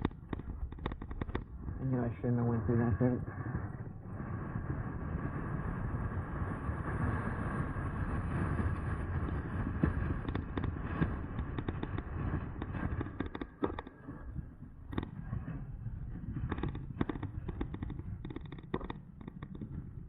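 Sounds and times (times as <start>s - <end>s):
bike clicks and knocks: 0.0s - 1.5s, 9.3s - 14.0s, 16.5s - 19.8s
wind and rolling rumble: 0.0s - 20.0s.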